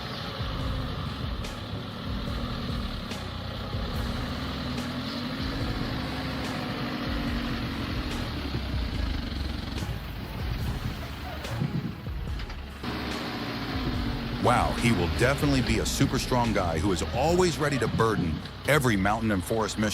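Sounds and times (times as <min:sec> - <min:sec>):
heavy machine engine running: 0:00.0 - 0:19.9.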